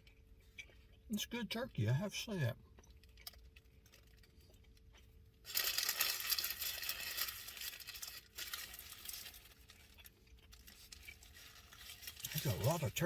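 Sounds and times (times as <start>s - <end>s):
paper wrapper crinkling: 5.4s - 13.0s.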